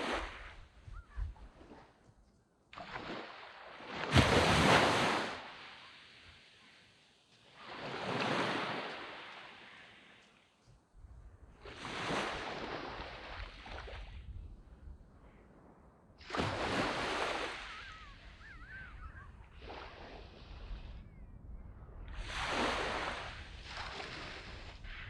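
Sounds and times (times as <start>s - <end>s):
small waves breaking on sand: 0.0s - 2.0s, 2.7s - 10.6s, 11.6s - 14.6s, 16.2s - 21.1s, 22.0s - 25.0s.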